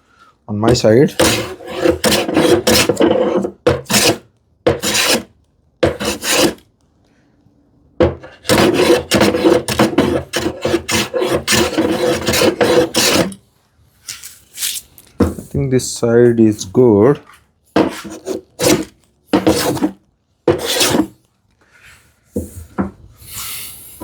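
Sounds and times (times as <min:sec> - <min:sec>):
hand tool rasping across wood: 0:00.7 - 0:06.6, 0:08.2 - 0:13.4, 0:17.8 - 0:21.2.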